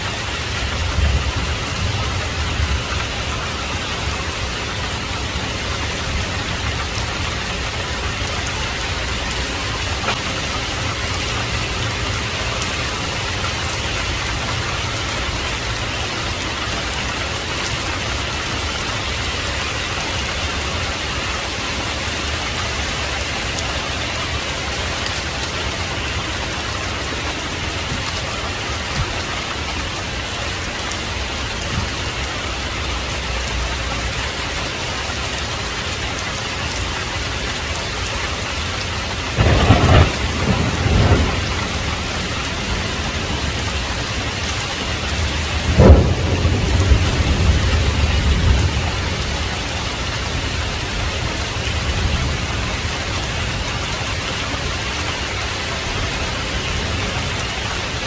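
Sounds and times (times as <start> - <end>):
heavy rain: 0.0 - 58.0
thunderclap with deep rumble: 0.1 - 4.4, 39.3 - 52.9.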